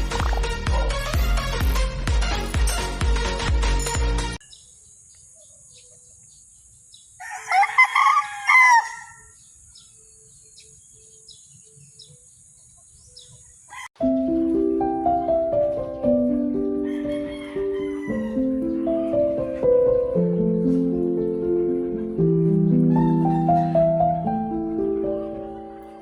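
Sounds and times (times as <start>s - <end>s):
rooster crowing: 7.2s - 9.4s, 13.6s - 13.9s, 16.8s - 18.5s.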